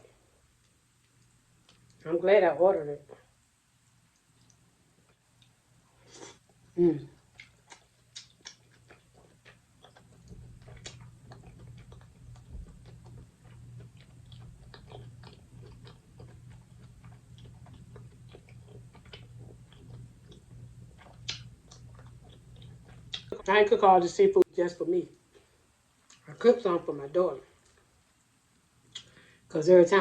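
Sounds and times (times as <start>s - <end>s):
steady low hum: 0.0s - 30.0s
chewing and smacking: 4.1s - 5.6s, 6.4s - 23.5s.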